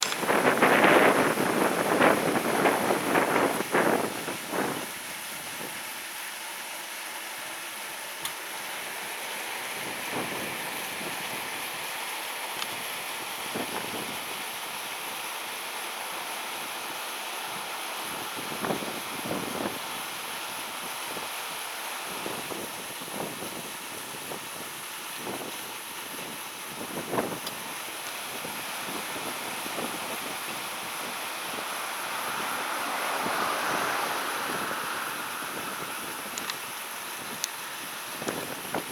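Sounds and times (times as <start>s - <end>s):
wind gusting against microphone: 0.0s - 5.8s, 22.2s - 38.9s.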